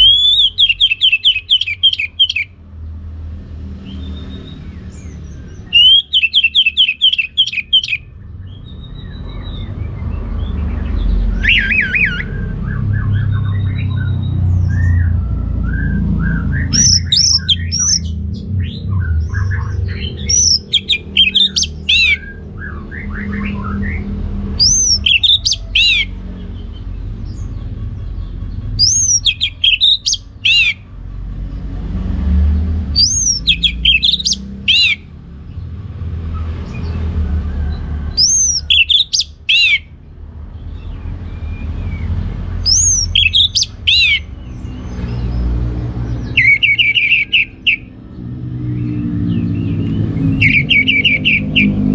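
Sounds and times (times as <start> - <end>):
thrush singing whistles and trills: 0.0 - 2.6, 3.8 - 30.9, 32.8 - 35.6, 36.3 - 40.0, 40.6 - 51.9.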